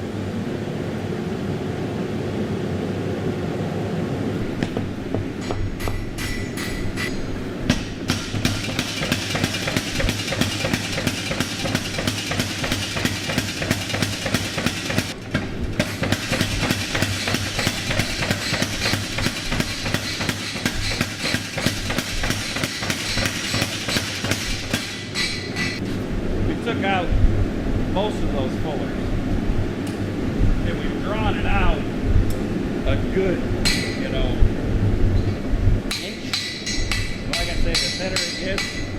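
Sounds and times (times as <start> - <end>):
power hammer striking hot steel: 4.4 - 25.8, 35.9 - 38.9.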